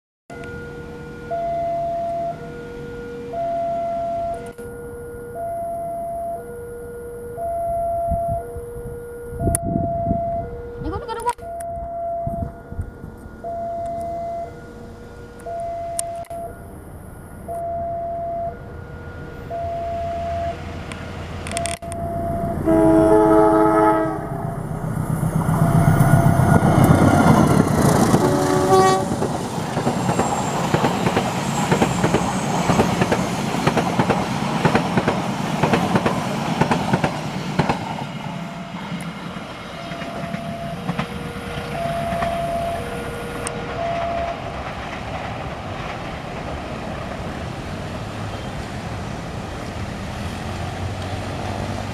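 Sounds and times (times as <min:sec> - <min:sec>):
level-crossing alarm two tones: 0:00.3 - 0:33.4, 0:38.0 - 0:45.0
train horn blast: 0:22.0 - 0:24.7, 0:28.0 - 0:29.3
train wheels clattering on rails: 0:25.2 - 0:51.9.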